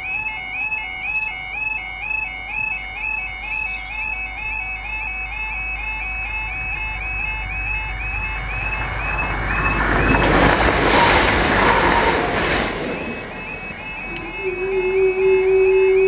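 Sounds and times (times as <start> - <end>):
steady hum: 0.0 - 10.3, 12.3 - 16.0
two-tone crossing alarm: 0.0 - 16.0
diesel train passing: 5.8 - 16.0.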